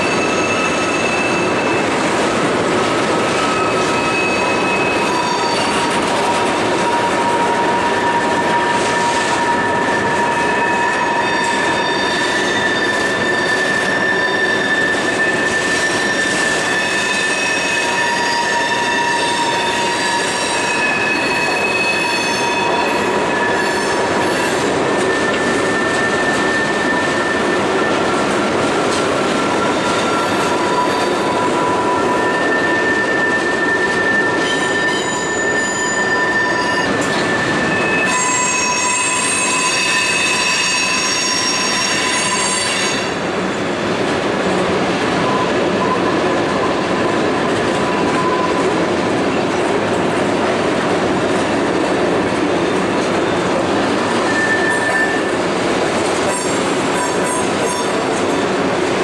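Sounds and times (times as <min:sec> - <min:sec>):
freight train rumbling over bridge: 0:00.0 - 0:59.0
wheels squealing: 0:03.3 - 0:28.2, 0:29.2 - 0:43.1, 0:54.2 - 0:55.4.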